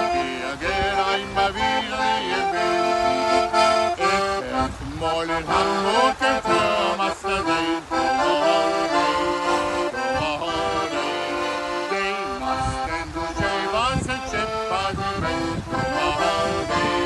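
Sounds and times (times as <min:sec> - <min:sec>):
accordion playing a melody: 0:00.0 - 0:17.0.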